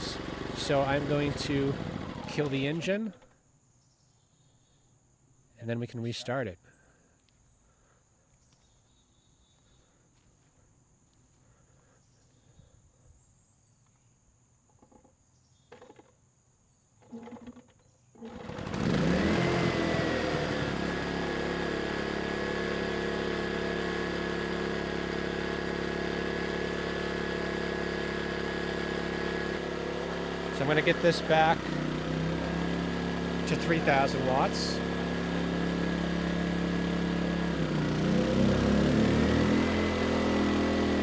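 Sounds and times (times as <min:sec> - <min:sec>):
generator engine starting and running: 0:00.0 - 0:03.4, 0:18.2 - 0:41.0.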